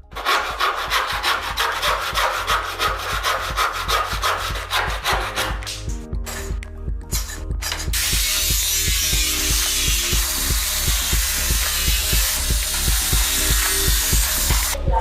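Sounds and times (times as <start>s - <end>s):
hand tool rasping wood: 0.0s - 5.9s.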